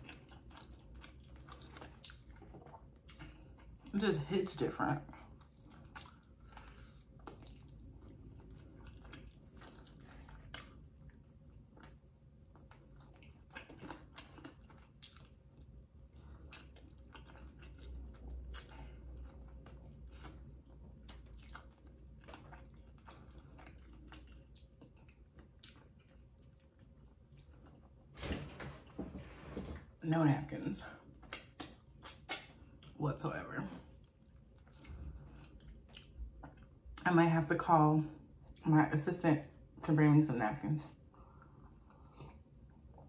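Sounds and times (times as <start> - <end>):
person chewing chicken: 0.0 - 3.9, 5.1 - 28.1, 33.9 - 37.0, 41.1 - 43.0
wet mouth clicks and smacks: 31.2 - 32.6.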